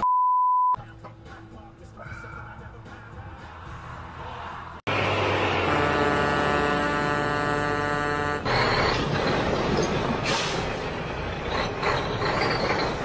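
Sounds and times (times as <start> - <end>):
rough road noise: 3.2 - 13.0
vehicle engine drone: 3.6 - 13.0.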